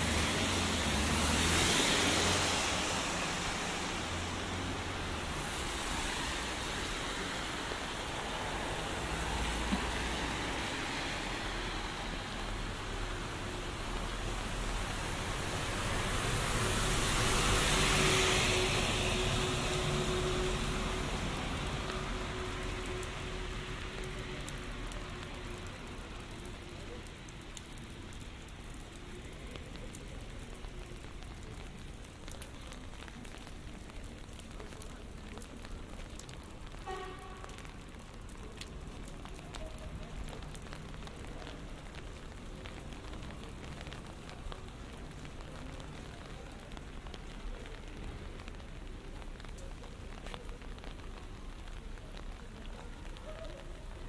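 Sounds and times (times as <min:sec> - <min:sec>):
vehicle passing: 0:00.0 - 0:07.7
rain falling on street: 0:00.0 - 0:54.0
raindrops ticking near microphone: 0:00.0 - 0:54.0.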